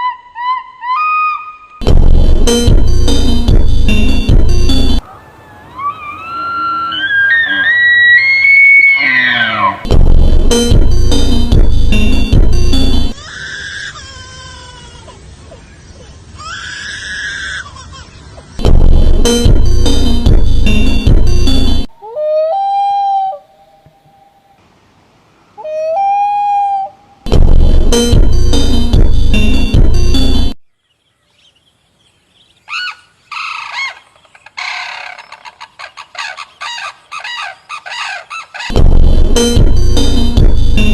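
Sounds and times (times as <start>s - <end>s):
music: 1.8s - 5.0s, 9.8s - 13.2s, 18.6s - 21.9s, 27.3s - 30.6s, 38.7s - 40.9s
animal screaming: 5.1s - 9.9s, 13.2s - 14.6s, 16.4s - 18.0s
clucking bird calls: 32.6s - 38.8s.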